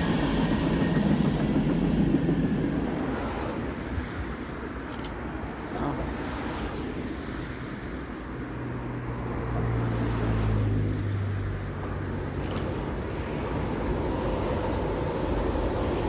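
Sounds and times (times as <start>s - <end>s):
passenger train running: 0.0s - 16.0s.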